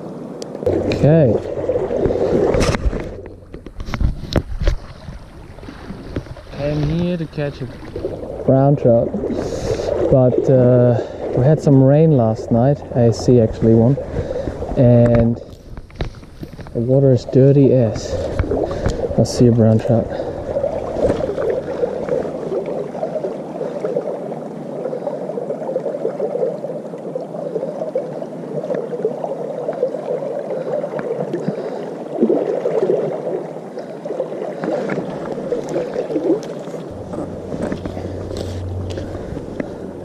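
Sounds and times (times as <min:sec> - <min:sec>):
river water gurgling over stones: 0:00.0 - 0:40.0
low rumble: 0:36.9 - 0:40.0.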